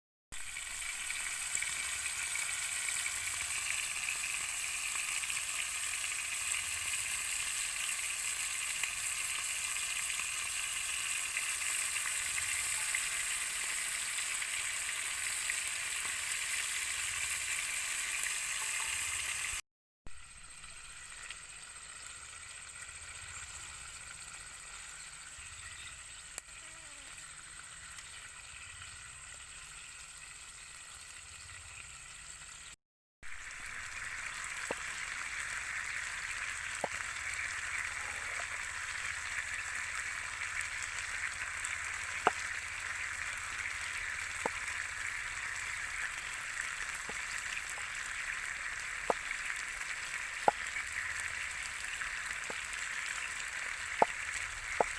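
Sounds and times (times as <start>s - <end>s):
steak sizzling: 0.3s - 32.6s, 33.2s - 54.9s
fat popping: 54.0s - 54.2s.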